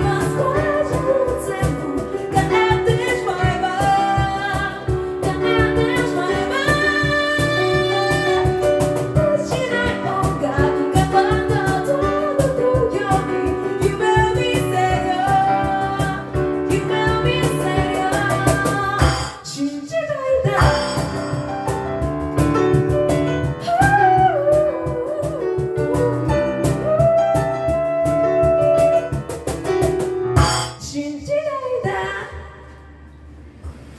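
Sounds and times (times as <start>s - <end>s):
vocal group singing in harmony: 0.0s - 19.6s
vocal percussion beat: 0.0s - 31.0s.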